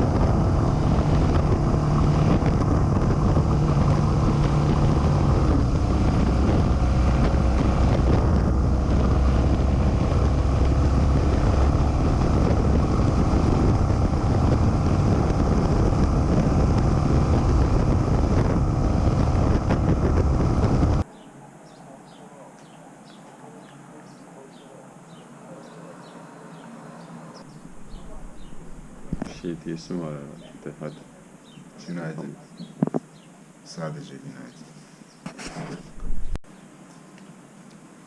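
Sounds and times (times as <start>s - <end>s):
motorcycle engine drone: 0.0s - 21.1s, 23.3s - 32.0s
wind rush on microphone: 0.0s - 21.1s, 27.5s - 29.8s, 35.8s - 36.4s.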